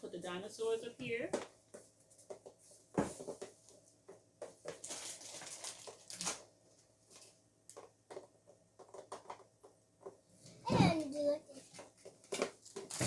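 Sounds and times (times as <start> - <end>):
plastic rustling: 4.4 - 9.4, 10.9 - 13.0.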